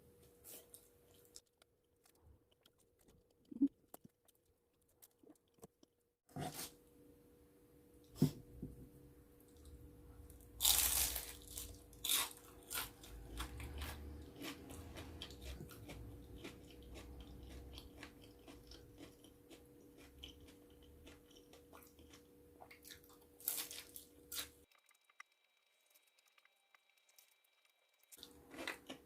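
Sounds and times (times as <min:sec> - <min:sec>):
crunchy food chewing: 0:10.6 - 0:27.5, 0:28.1 - 0:29.0.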